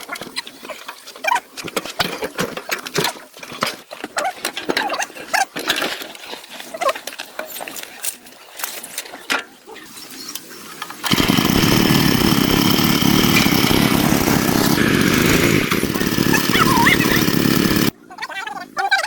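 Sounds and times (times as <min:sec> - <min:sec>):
small engine running: 0:11.0 - 0:18.0.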